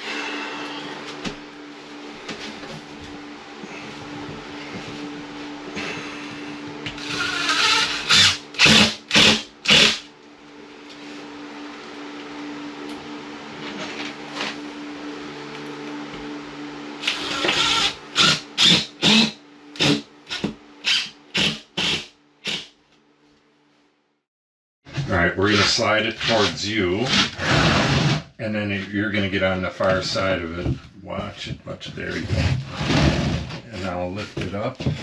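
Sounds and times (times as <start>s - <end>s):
steady low hum: 0.0s - 23.8s, 24.9s - 35.0s
hand tool scraping drywall: 25.4s - 28.2s.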